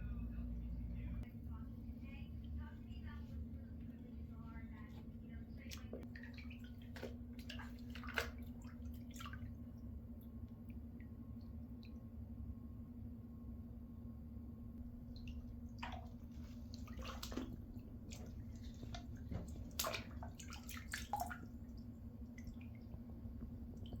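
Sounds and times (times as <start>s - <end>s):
steady low hum: 0.0s - 24.0s
water dripping in a bathtub: 4.9s - 12.5s, 14.8s - 24.0s.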